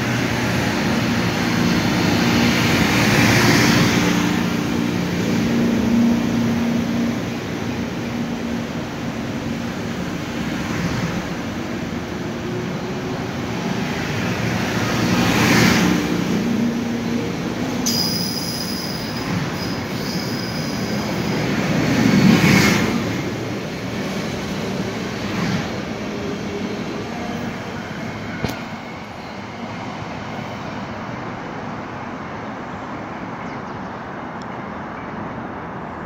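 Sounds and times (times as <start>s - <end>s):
train rolling past: 0.0s - 33.4s.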